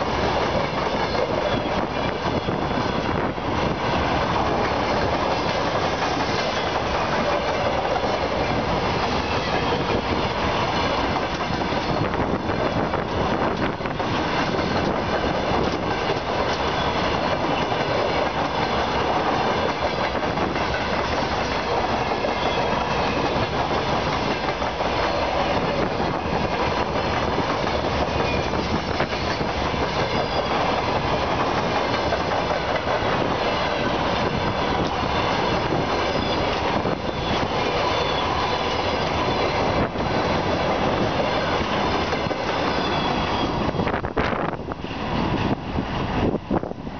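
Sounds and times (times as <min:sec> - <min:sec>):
train wheels on rails: 0:00.0 - 0:46.9
wheels squealing: 0:27.6 - 0:32.1, 0:33.4 - 0:44.0.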